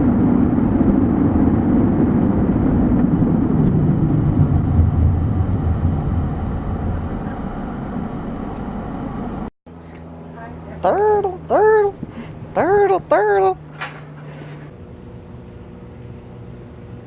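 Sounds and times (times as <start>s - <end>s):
car driving rumble from inside: 0.0s - 9.5s.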